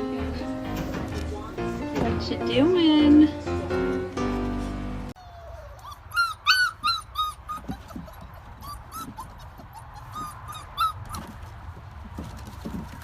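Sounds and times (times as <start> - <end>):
dog whimpering yips: 5.2 - 11.3.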